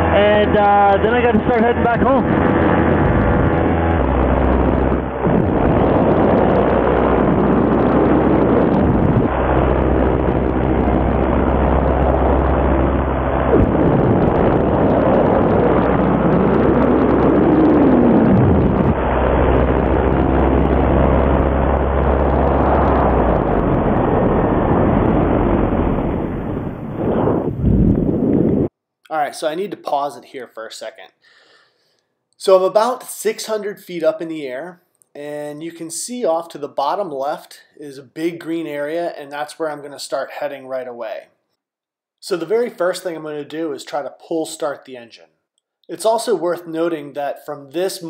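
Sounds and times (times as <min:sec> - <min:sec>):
paramotor engine running: 0:00.0 - 0:26.4
wind on microphone: 0:00.0 - 0:28.7.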